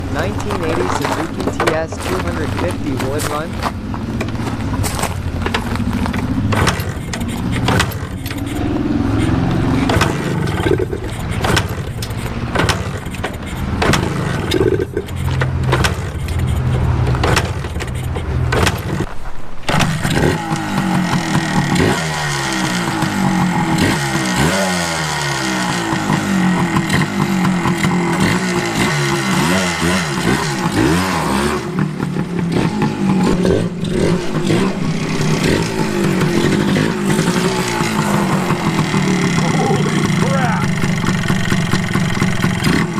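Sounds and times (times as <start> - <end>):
two-stroke motorcycle engine revving: 0.0 - 19.1, 19.7 - 42.9.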